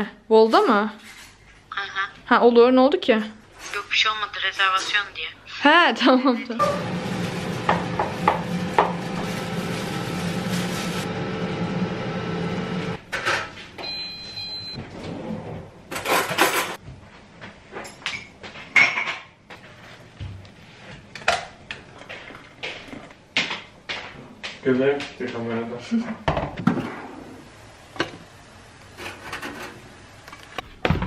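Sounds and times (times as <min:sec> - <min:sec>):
scrape: 0:01.0 - 0:01.4, 0:29.0 - 0:29.8
appliance hum: 0:06.6 - 0:17.0, 0:26.2 - 0:31.0
cupboard doors and dishes clattering: 0:15.9 - 0:16.8.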